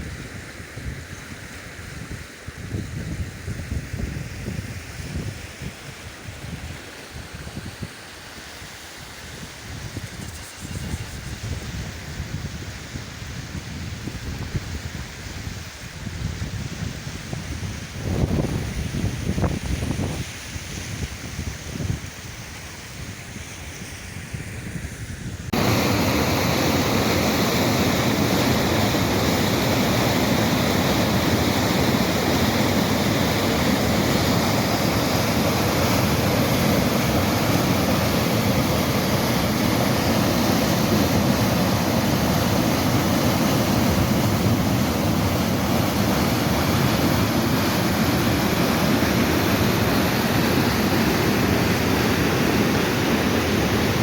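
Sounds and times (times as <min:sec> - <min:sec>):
heavy rain pouring: 0:25.5 - 0:54.0.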